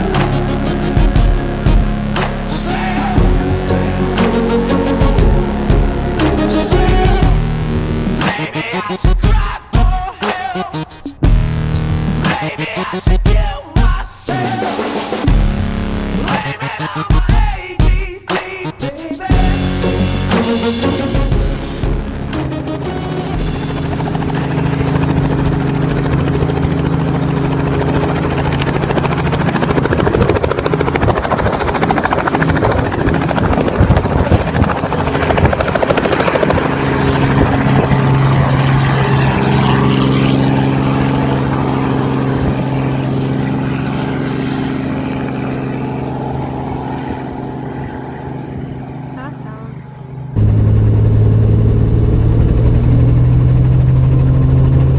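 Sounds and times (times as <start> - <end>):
helicopter engine hum: 0.0 - 54.9
rotor whooshing: 49.9 - 54.9.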